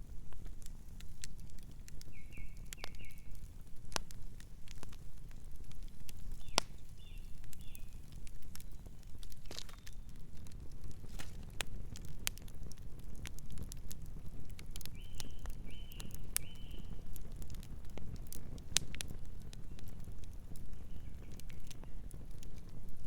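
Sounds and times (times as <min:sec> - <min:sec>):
campfire crackling and popping: 0:00.0 - 0:23.0
bird chirping softly: 0:02.0 - 0:03.5, 0:06.2 - 0:10.6, 0:14.8 - 0:17.2, 0:20.6 - 0:22.2.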